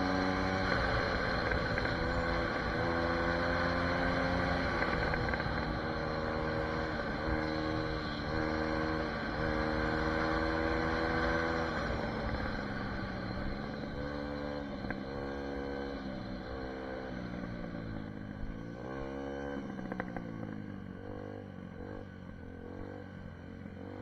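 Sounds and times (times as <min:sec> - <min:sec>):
motorbike engine running: 0:00.0 - 0:24.0.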